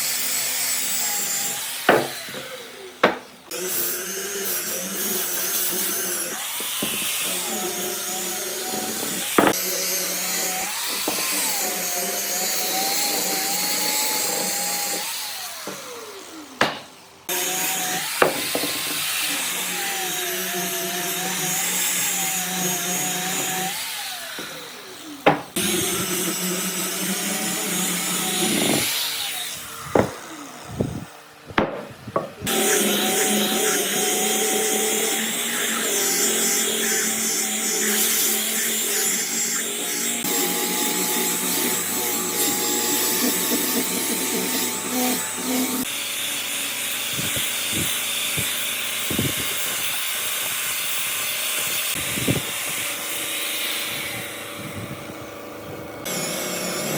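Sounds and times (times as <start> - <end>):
power tool motor whine on wood: 0.0 - 16.6, 17.3 - 31.1, 32.0 - 56.9
sharp knocks: 1.9 - 2.2, 3.0 - 3.3, 16.6 - 16.9, 25.2 - 25.6, 29.9 - 30.2, 31.5 - 32.4.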